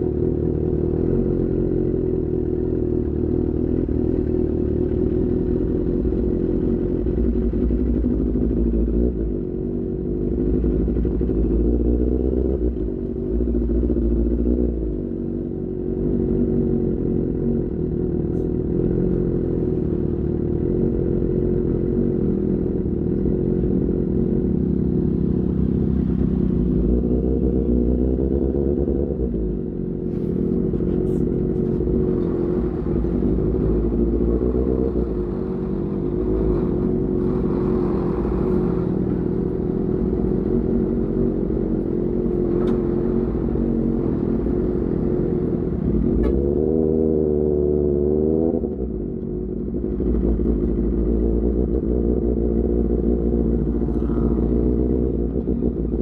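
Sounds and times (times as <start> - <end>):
motorcycle exhaust note: 22.8 - 56.0.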